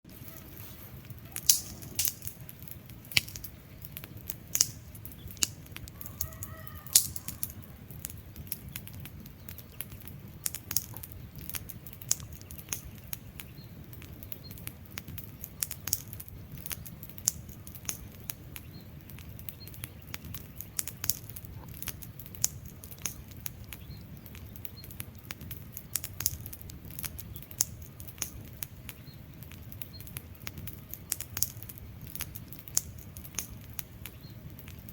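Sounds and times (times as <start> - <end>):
wood fire crackling: 0.0 - 34.9
chirp-like call: 5.2 - 7.8.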